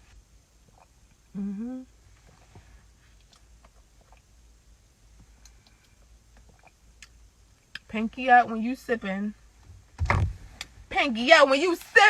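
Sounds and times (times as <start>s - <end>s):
person humming: 1.3s - 2.0s.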